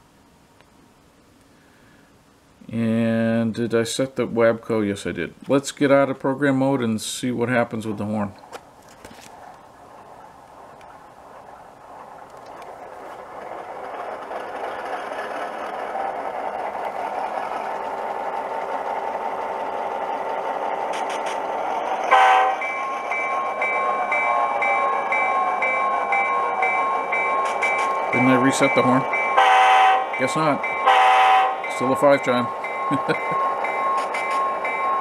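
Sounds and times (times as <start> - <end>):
diesel locomotive engine sound: 0.0 - 35.0
train horn: 22.0 - 22.6, 29.4 - 30.1, 30.9 - 31.6
bell ringing: 22.0 - 35.0.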